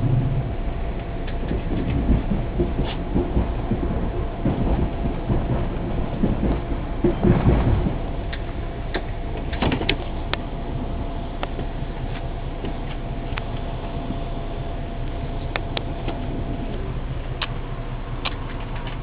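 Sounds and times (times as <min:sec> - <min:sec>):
train rumbling on rails: 0:00.0 - 0:19.0
sharp clicks of rails: 0:01.0 - 0:10.4, 0:18.2 - 0:19.0.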